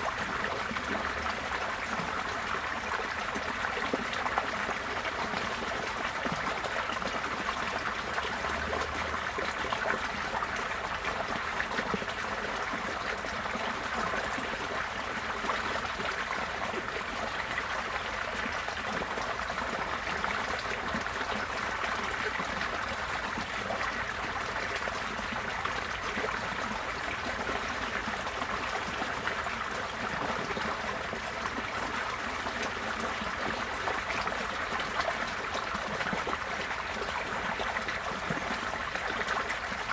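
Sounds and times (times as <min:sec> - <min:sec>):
floodwater trickling and gurgling: 0:00.0 - 0:39.9.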